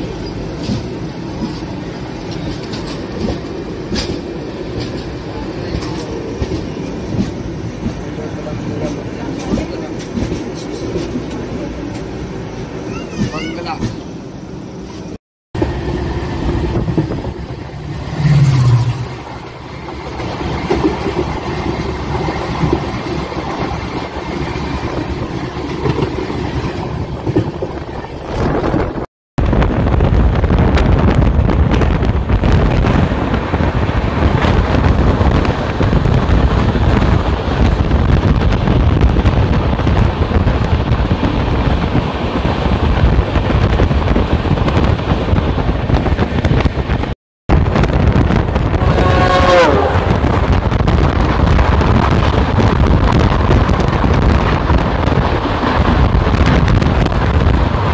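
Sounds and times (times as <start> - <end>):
train wheels rumbling on track: 0.0 - 57.9
wind on microphone: 16.5 - 57.9.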